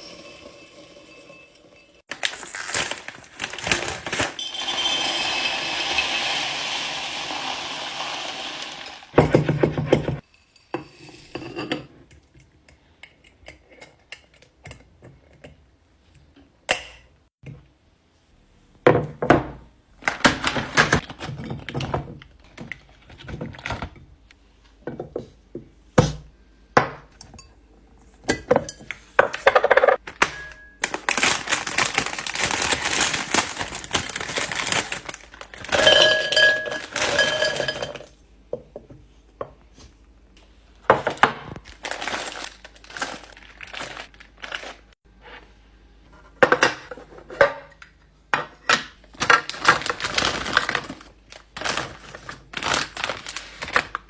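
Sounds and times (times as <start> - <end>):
packaging rustling: 2.1 - 4.4, 30.8 - 38.0, 41.6 - 45.0, 49.1 - 54.0
containers knocking and clinking: 31.7 - 38.9.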